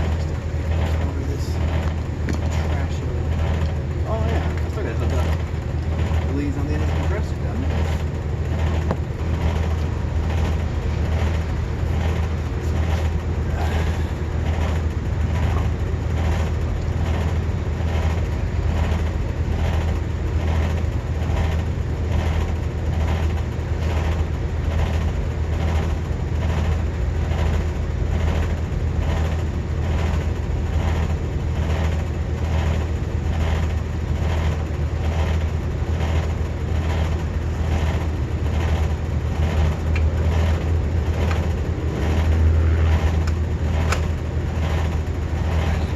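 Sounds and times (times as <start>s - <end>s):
condensing unit pulsing hum: 0.0s - 45.9s.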